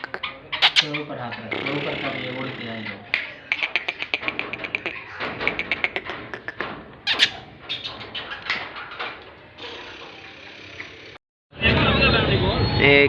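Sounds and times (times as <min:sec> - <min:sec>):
francolin clicking calls: 0:00.0 - 0:06.0.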